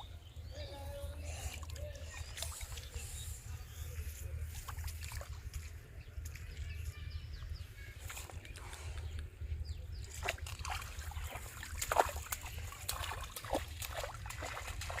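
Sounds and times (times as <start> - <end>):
water trickling and dripping: 1.1 - 3.0, 10.1 - 15.0
shallow water sloshing: 10.0 - 15.0.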